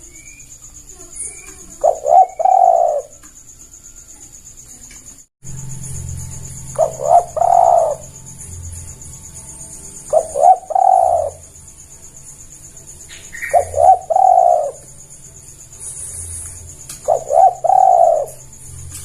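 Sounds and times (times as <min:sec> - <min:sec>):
high-pitched insect buzz: 0:00.0 - 0:19.0
dove cooing: 0:01.3 - 0:03.2, 0:06.6 - 0:08.2, 0:10.0 - 0:11.6, 0:13.1 - 0:15.0, 0:16.4 - 0:19.0.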